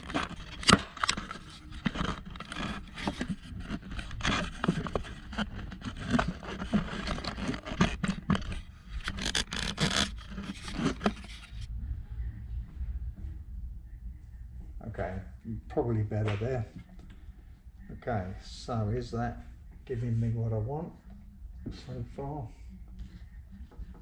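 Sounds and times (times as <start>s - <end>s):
wires scraping and rubbing: 0.0s - 11.7s.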